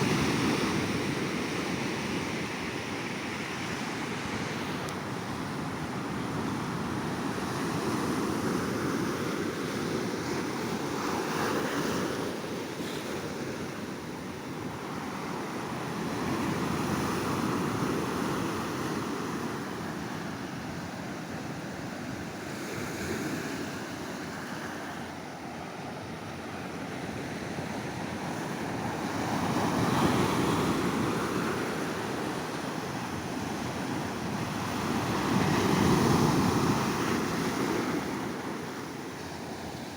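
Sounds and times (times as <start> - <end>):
sea waves breaking on beach: 22.4 - 39.9.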